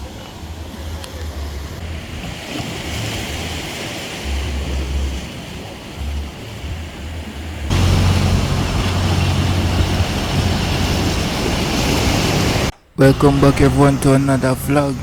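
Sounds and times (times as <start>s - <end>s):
surf washing on shore: 7.7s - 15.0s
wind buffeting microphone: 7.7s - 15.0s.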